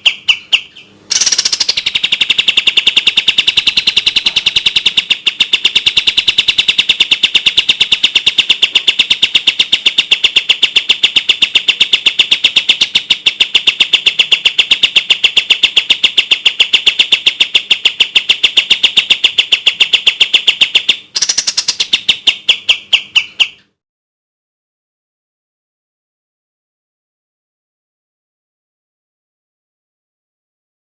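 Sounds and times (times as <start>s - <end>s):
songbird rapid-fire song: 0.0s - 23.8s.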